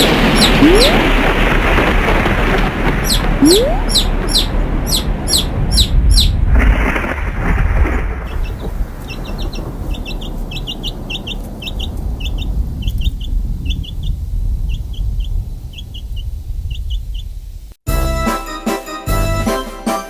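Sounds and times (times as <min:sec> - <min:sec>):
chicks peeping: 0:08.3 - 0:14.1, 0:14.7 - 0:17.3.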